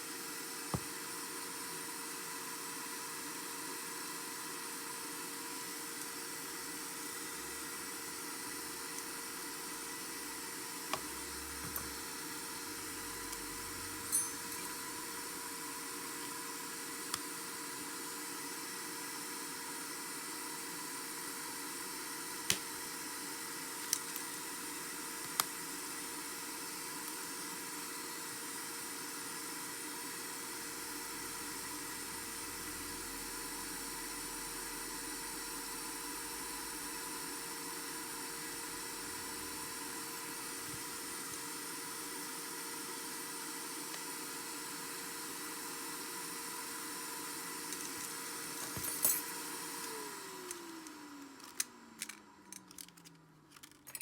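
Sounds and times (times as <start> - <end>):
steady electronic hiss: 7.4 - 16.1.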